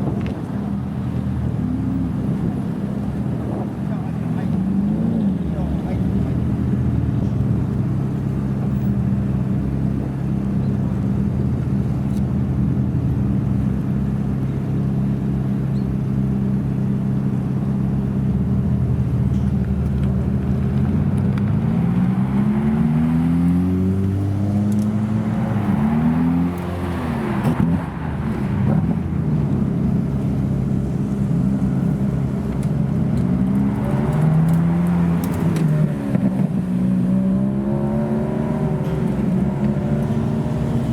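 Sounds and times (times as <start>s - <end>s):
supercar engine revving: 17.9s - 40.9s.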